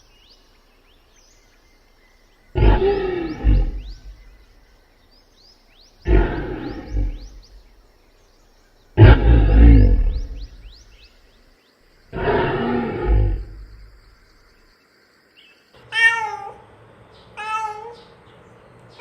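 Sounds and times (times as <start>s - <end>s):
faint chirps: 0.0s - 19.0s
big cat roaring: 2.6s - 4.3s, 6.0s - 7.6s, 9.0s - 10.8s, 12.1s - 13.9s.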